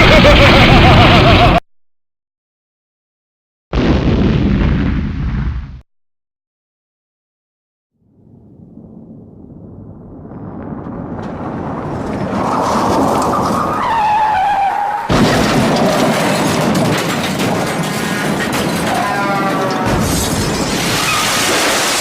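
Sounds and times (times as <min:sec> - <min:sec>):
vehicle rushing noise: 0:08.2 - 0:18.5.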